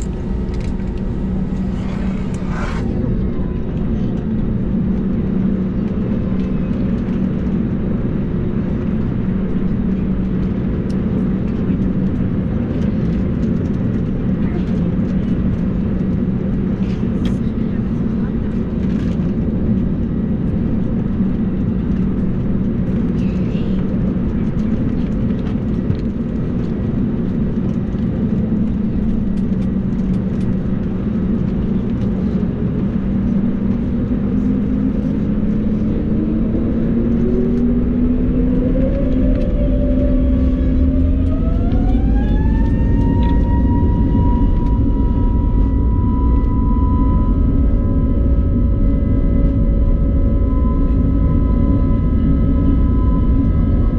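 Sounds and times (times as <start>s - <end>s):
cabin hum: 0.0s - 3.6s
jet engines spooling up: 0.0s - 5.1s
low rumble: 0.0s - 53.9s.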